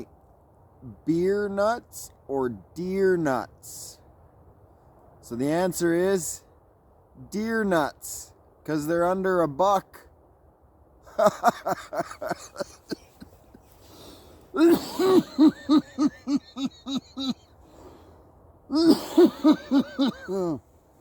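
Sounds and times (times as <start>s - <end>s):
man laughing hard: 11.1s - 13.7s, 14.5s - 17.5s, 18.7s - 20.6s.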